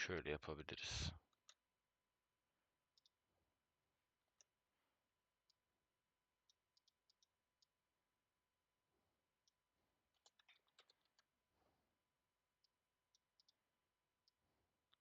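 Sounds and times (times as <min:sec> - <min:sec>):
faint computer keyboard and mouse clicks: 0:06.4 - 0:07.7, 0:09.4 - 0:11.3, 0:12.6 - 0:13.6, 0:14.2 - 0:15.0.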